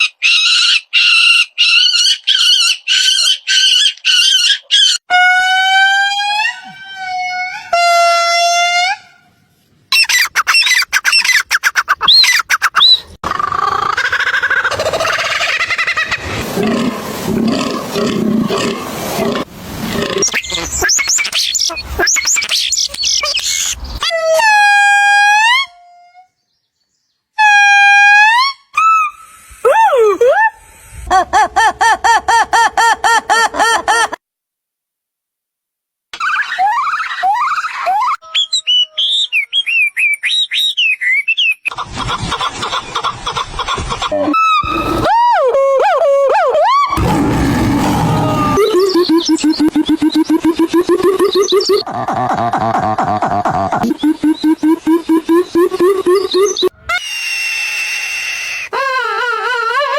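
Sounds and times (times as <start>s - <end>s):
animal roaring call: 46.9s - 48.8s
bird whistling notes: 48.6s - 51.8s, 53.8s - 56.7s
quick high chirps: 48.6s - 51.9s, 53.4s - 56.7s.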